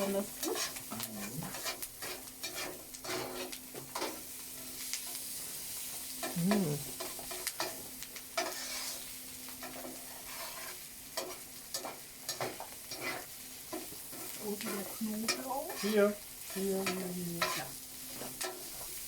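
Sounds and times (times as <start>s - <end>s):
paste sizzling in a hot pan: 0.0s - 19.0s
spoon scraping pan bottom: 9.7s - 16.1s.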